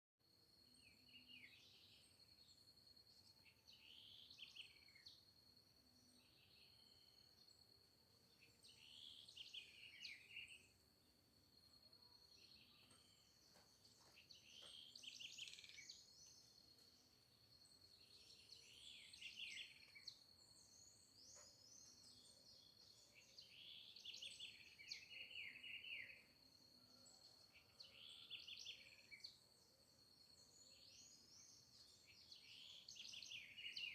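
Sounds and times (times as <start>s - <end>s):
songbird warbling: 14.4s - 16.4s.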